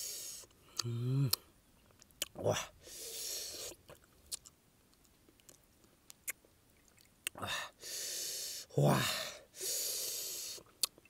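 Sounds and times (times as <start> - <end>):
soft mouth clicks: 0.4 - 2.4, 3.5 - 7.4, 10.6 - 11.0
crunchy chewing: 3.5 - 7.4.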